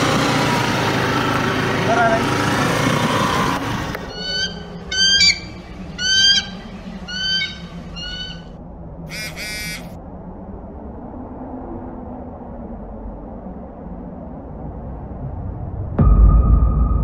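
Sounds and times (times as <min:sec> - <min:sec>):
harsh bird call: 0:04.0 - 0:08.5, 0:09.1 - 0:10.0
short high bird calls: 0:04.0 - 0:08.5, 0:09.1 - 0:09.9.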